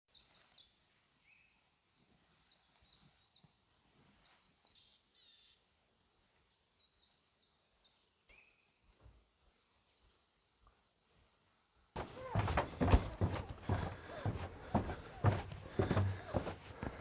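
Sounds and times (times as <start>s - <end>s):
small birds chirping: 12.0s - 17.0s.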